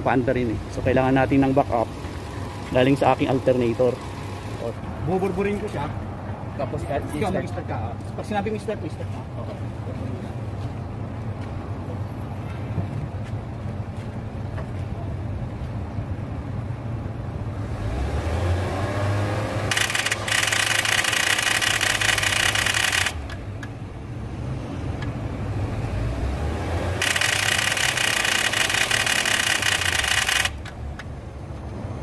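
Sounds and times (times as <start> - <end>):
car engine idling and revving: 0.0 - 32.0
starter motor cranking: 19.6 - 23.7, 26.9 - 31.1.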